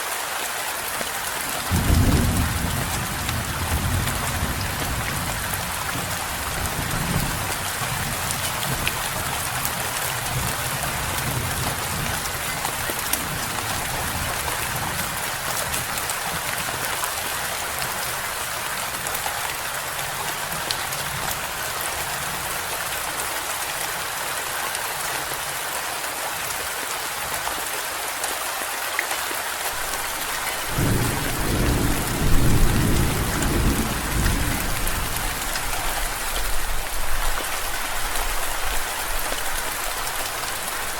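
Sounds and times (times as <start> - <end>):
steady rain falling: 0.0 - 40.9
rolling thunder rumble: 1.7 - 8.9, 30.0 - 36.8.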